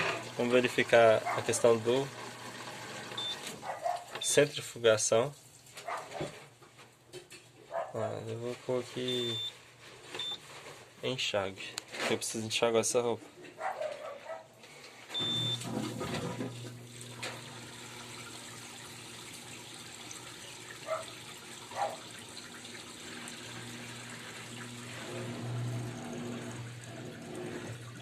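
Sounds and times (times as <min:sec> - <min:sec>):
water running in washing machine: 0:00.0 - 0:06.5, 0:14.8 - 0:28.0
washing machine beep: 0:02.5 - 0:03.5, 0:04.2 - 0:04.4, 0:09.0 - 0:09.6, 0:10.2 - 0:10.5, 0:15.1 - 0:19.2, 0:23.2 - 0:28.0
low machine hum: 0:22.4 - 0:28.0.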